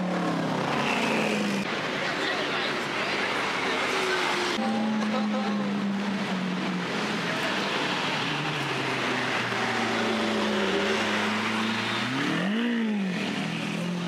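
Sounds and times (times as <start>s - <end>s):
engine revving: 5.7s - 14.0s.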